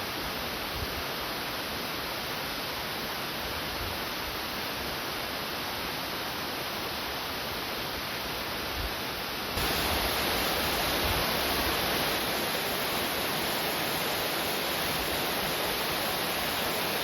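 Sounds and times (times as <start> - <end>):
waterfall rushing: 9.4 - 17.0.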